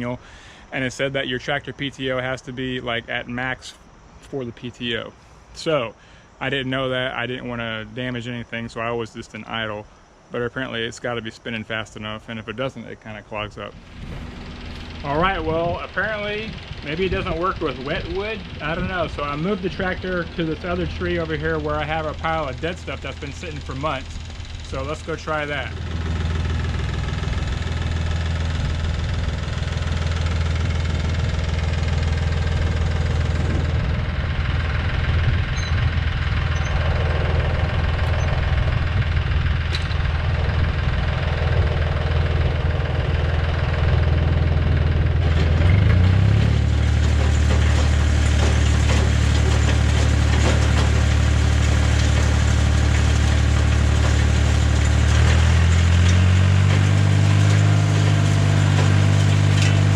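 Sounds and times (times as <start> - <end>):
tractor engine running: 13.6 - 59.9.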